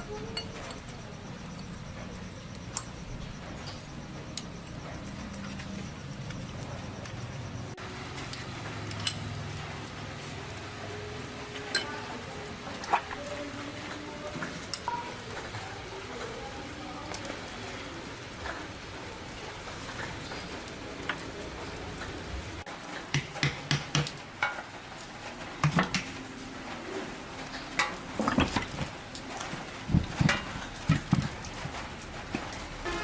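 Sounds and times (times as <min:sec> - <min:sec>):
metal tools clinking and knocking: 0:08.9 - 0:09.3.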